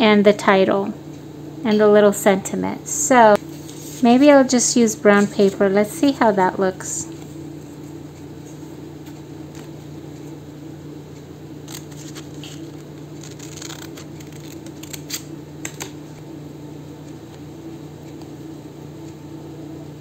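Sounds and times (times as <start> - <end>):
steady low hum: 0.0 - 20.0
paper rustling: 11.6 - 16.0
scissors snipping paper: 11.6 - 16.0.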